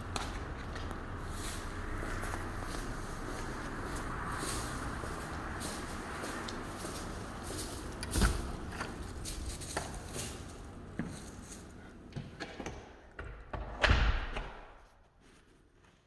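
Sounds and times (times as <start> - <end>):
footsteps: 0.0 - 12.7.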